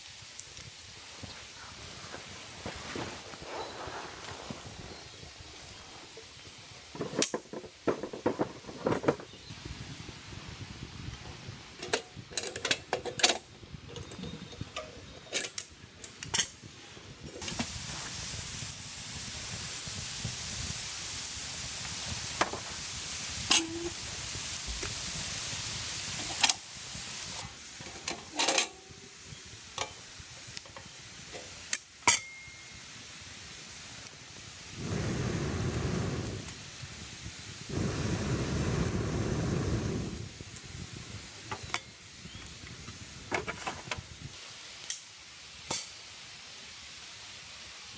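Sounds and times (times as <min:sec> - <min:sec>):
food sizzling in a pan: 0:17.4 - 0:47.9
utensil clinking against metal: 0:32.1 - 0:32.7.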